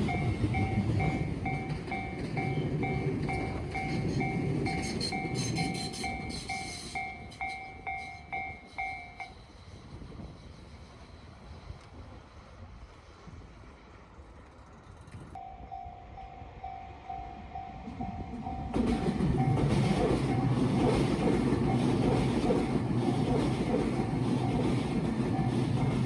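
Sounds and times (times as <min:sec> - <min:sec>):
level crossing warning bell ringing: 0:00.0 - 0:09.4, 0:15.4 - 0:23.0, 0:24.2 - 0:26.0
electric train low hum: 0:00.0 - 0:26.0.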